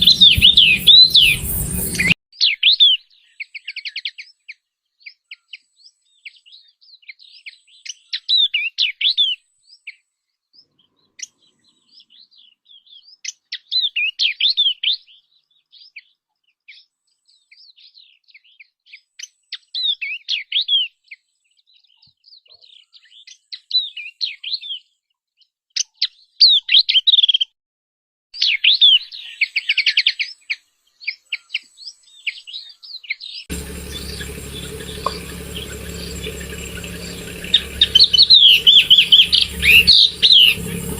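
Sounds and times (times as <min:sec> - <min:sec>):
bird chirping: 0:00.0 - 0:04.1, 0:28.4 - 0:40.9
steady hum and hiss: 0:33.5 - 0:40.9.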